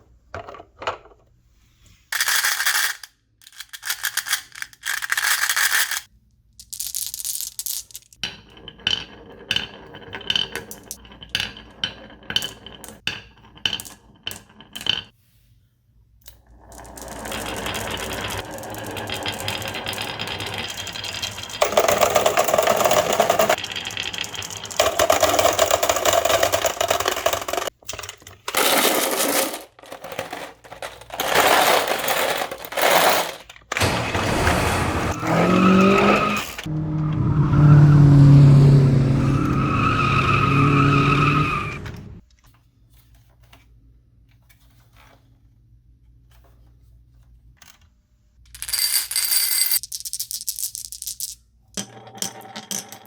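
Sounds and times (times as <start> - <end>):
marbles rattling down marble run: 2.2 - 6.1, 16.5 - 27.8, 48.5 - 53.0.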